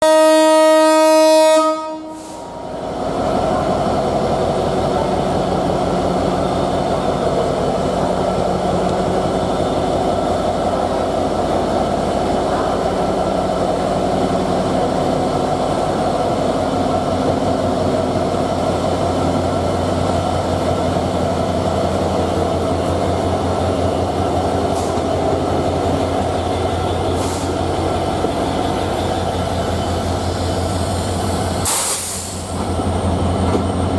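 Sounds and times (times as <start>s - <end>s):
locomotive horn chord: 0.0s - 2.4s
train rumbling on rails: 0.0s - 33.9s.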